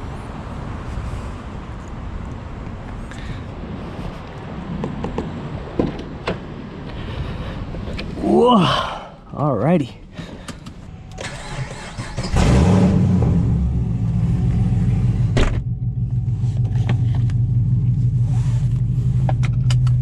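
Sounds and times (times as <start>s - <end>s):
vee eight engine starting and idling: 10.4s - 20.0s.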